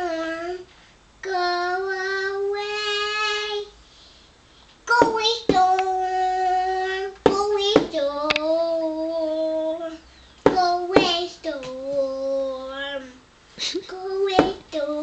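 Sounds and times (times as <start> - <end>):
child singing long notes: 0.0 - 3.8, 4.9 - 13.2
sharp taps: 10.4 - 11.8.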